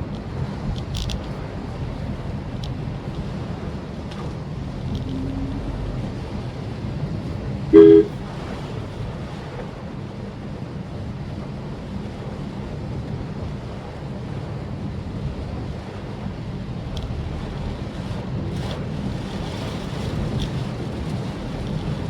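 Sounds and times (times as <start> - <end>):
car driving on wet road: 0.0 - 11.0, 11.7 - 22.0
two-tone car horn honk: 7.8 - 8.2.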